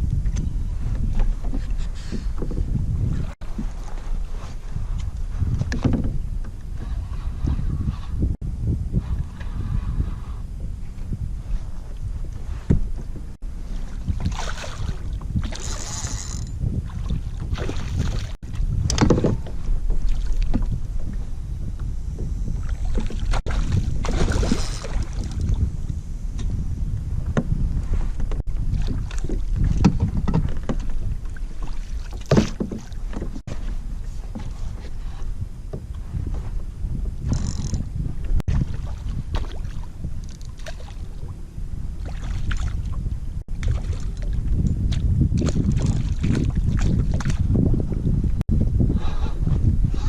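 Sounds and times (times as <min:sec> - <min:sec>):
water splashing against hull: 0:00.0 - 0:08.3, 0:08.9 - 0:48.4
wind rumbling on microphone: 0:00.0 - 0:50.0
small splashes and knocks: 0:13.9 - 0:15.9, 0:16.9 - 0:20.8, 0:22.6 - 0:25.6, 0:28.7 - 0:33.6, 0:38.5 - 0:41.0, 0:42.0 - 0:42.9, 0:43.6 - 0:47.5.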